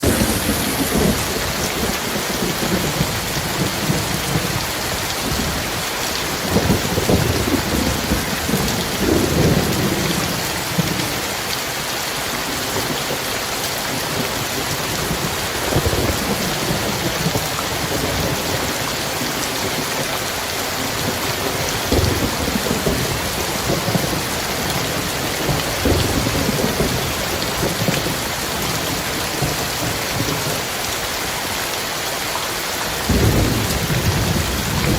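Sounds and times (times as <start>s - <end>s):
thunder rumbling: 0.0s - 11.3s, 13.9s - 30.7s, 33.0s - 34.9s
heavy rain: 0.0s - 34.9s.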